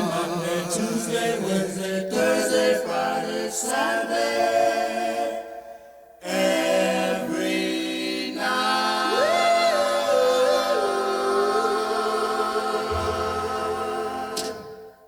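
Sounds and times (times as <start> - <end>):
vocal group singing in harmony: 0.0 - 15.0
low bass note: 12.9 - 14.2.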